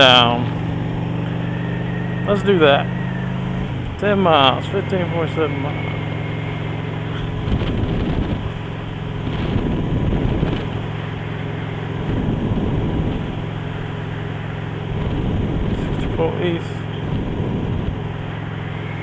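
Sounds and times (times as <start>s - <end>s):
motorcycle engine running: 0.0s - 19.0s
wind rushing over microphone: 0.0s - 19.0s.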